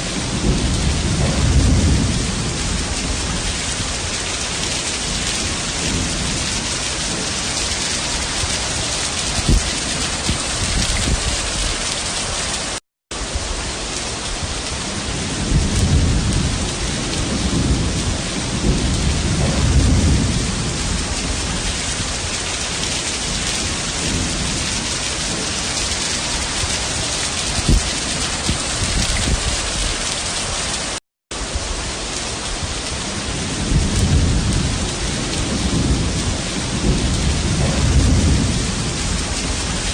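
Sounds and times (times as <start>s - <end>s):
heavy rain pouring: 0.0s - 39.9s
rolling thunder: 0.0s - 39.9s.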